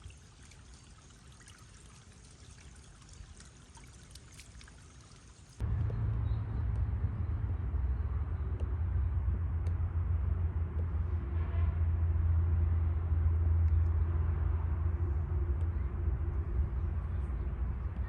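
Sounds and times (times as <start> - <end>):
outdoor rumble: 5.6 - 18.0.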